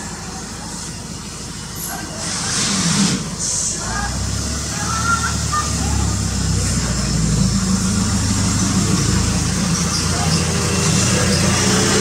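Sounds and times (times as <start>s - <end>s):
low engine hum: 3.2s - 12.0s.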